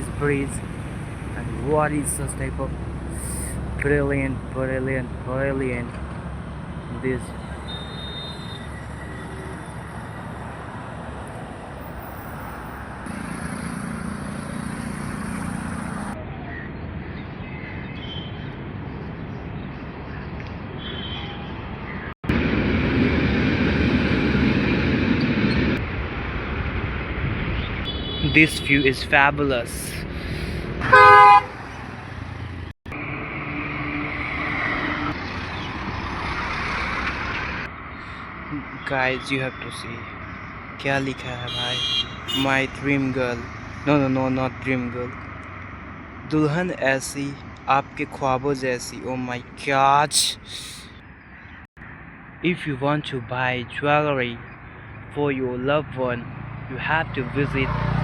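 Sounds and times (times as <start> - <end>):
vehicle passing: 0.0 - 16.3, 28.4 - 38.7, 56.2 - 58.0
road traffic noise: 0.0 - 58.0
vehicle horn: 7.6 - 9.3, 27.9 - 29.0, 30.8 - 31.7, 41.4 - 42.6.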